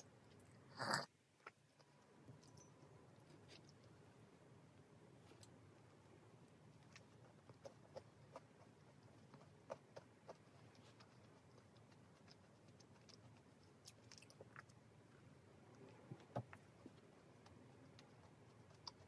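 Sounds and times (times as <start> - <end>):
crunchy chewing: 6.6 - 19.0.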